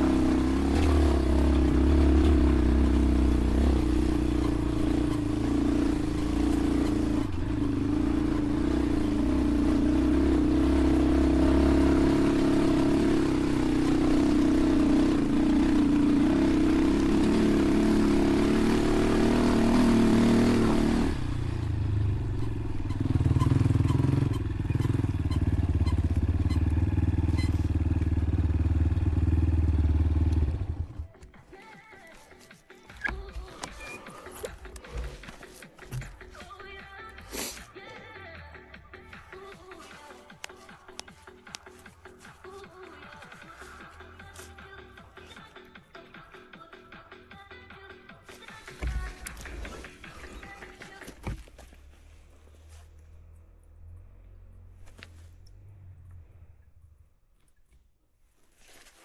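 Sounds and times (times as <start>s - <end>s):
dirt bike engine running: 0.0s - 31.1s.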